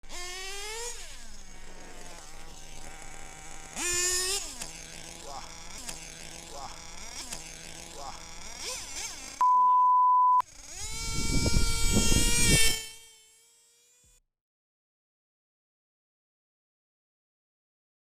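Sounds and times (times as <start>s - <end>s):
nitro model engine buzzing: 0.0s - 9.5s, 10.4s - 14.2s.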